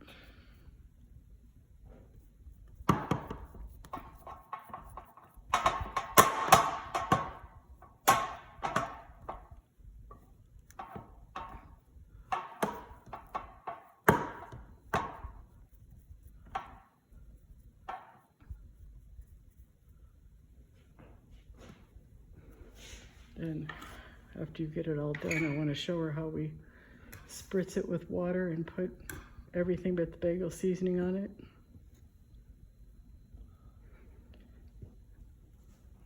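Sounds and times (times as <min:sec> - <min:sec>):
dough thudding and slapping: 0:02.7 - 0:16.9.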